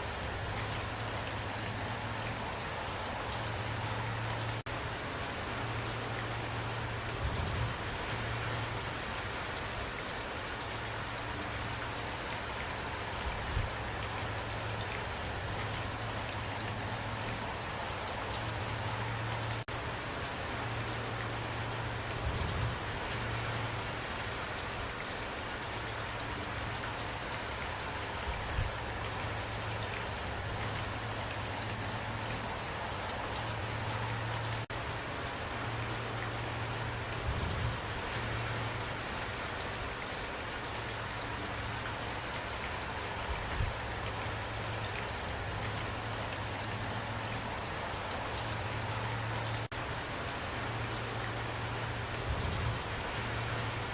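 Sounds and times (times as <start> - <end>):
rain falling: 0.0 - 53.9.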